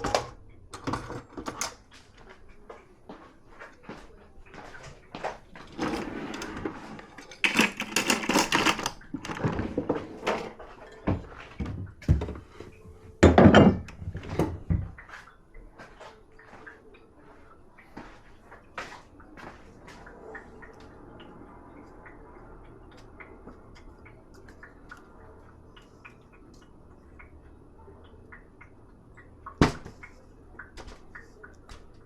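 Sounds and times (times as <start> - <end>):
dishes and cutlery clattering: 0.0 - 1.9, 5.6 - 14.8.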